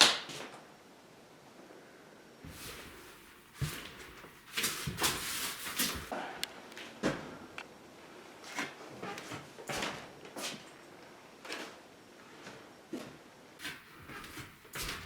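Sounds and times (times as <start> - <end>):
knocks and scrapes in small room: 2.4 - 7.7, 8.4 - 10.8, 11.4 - 15.0.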